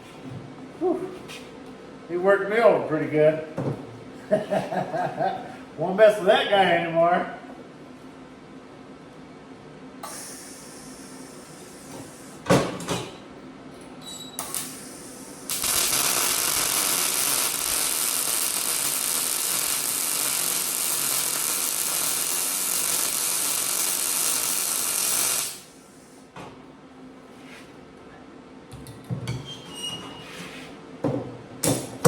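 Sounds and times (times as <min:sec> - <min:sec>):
welder crackling hiss: 0:14.4 - 0:26.2.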